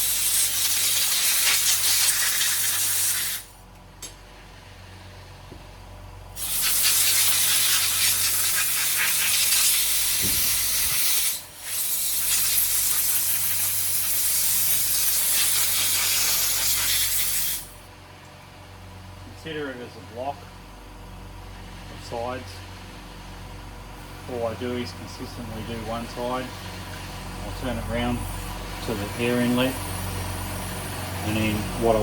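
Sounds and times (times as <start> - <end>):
compressed air blow gun hissing: 0.0 - 3.6, 6.4 - 17.8.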